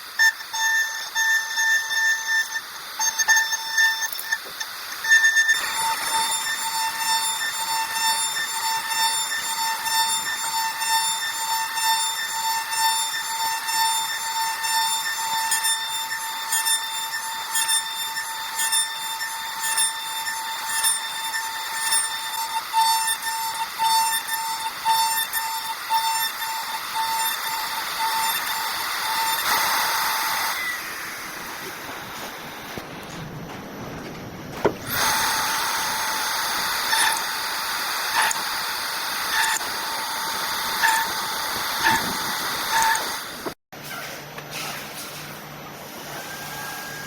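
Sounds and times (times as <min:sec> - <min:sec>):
router spindle whine: 0:00.0 - 0:43.6, 0:46.1 - 0:47.0
hiss of cutting wood: 0:24.1 - 0:32.6, 0:34.9 - 0:43.6.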